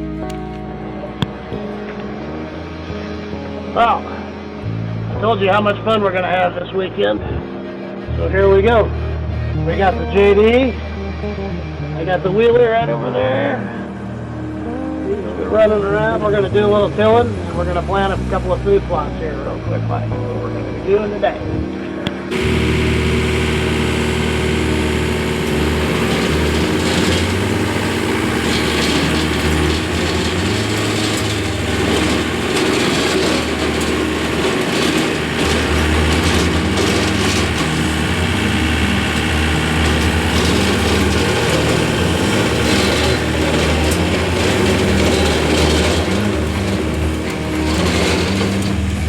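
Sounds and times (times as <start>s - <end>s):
small vehicle engine running: 22.3s - 49.0s.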